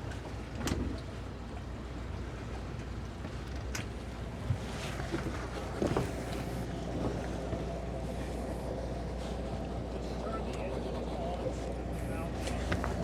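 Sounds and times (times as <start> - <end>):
outboard engines idling: 5.3 - 13.0.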